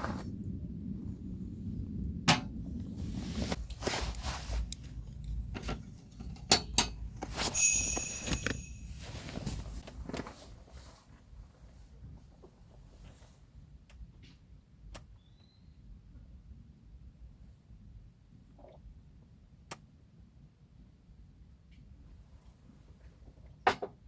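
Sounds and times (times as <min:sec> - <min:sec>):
metallic clink ringing: 0:07.5 - 0:09.5.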